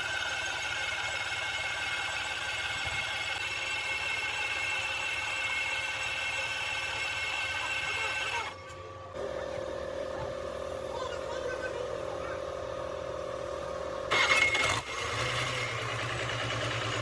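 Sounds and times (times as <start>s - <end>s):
diesel engine running with whine: 8.4s - 17.0s.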